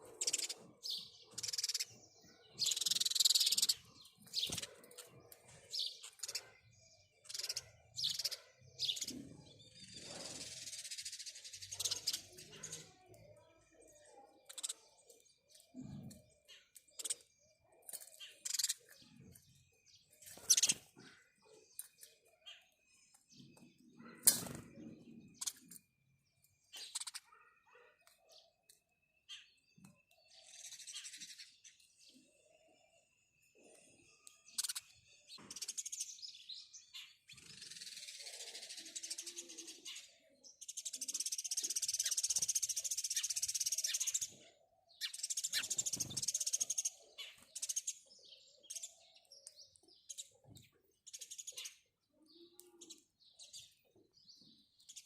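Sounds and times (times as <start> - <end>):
sparrows chirping: 0.0 - 55.0.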